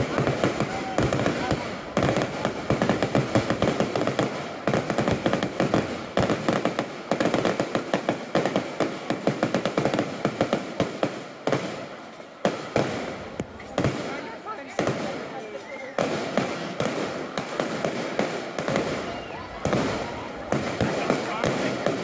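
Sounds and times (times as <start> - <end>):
fireworks bangs: 0.0 - 22.0
fireworks crackling: 0.0 - 22.0.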